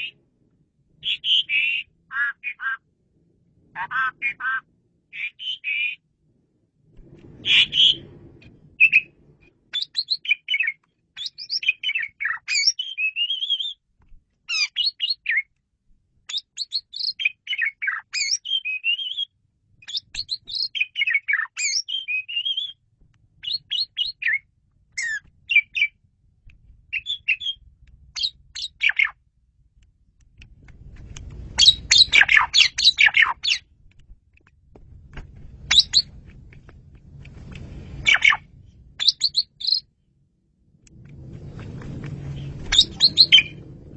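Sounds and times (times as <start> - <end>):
starling singing: 1.0 - 2.8, 3.8 - 6.0, 7.4 - 8.0, 9.7 - 13.8, 14.5 - 15.5, 16.3 - 22.8, 23.4 - 26.0, 26.9 - 27.6, 28.2 - 29.2, 31.6 - 33.7, 35.7 - 36.1, 38.0 - 38.4, 39.0 - 39.9, 42.6 - 43.6.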